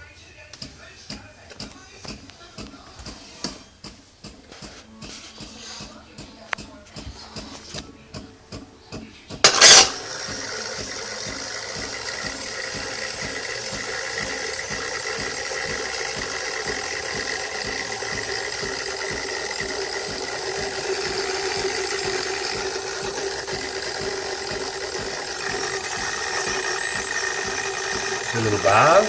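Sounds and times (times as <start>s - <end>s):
coffee machine running: 9.4s - 29.0s.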